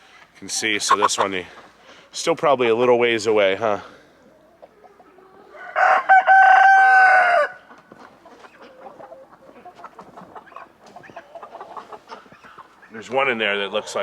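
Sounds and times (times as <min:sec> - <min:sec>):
hens clucking and scratching: 0:00.1 - 0:14.0
rooster crowing: 0:05.5 - 0:07.7.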